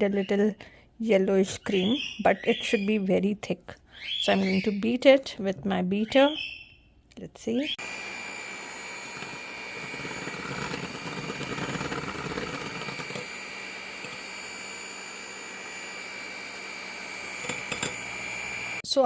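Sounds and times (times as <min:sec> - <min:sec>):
electric beater whining: 0:07.7 - 0:18.8.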